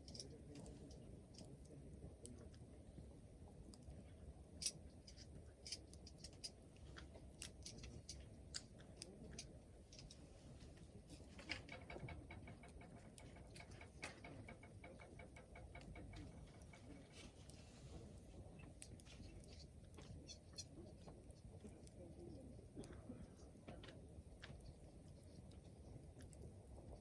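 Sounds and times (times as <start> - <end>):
wood fire crackling: 0.0 - 27.0
low rumble of flames: 0.1 - 27.0.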